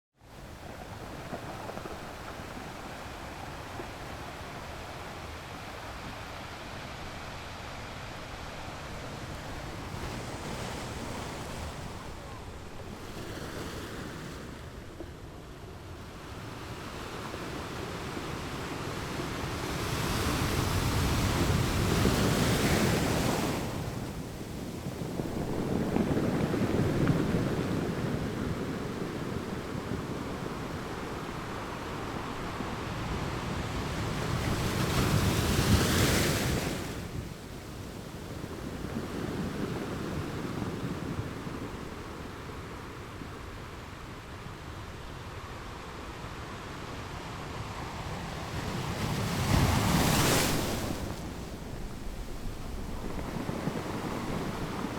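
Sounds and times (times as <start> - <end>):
waves crashing against rocks: 16.6 - 43.9, 48.5 - 54.9.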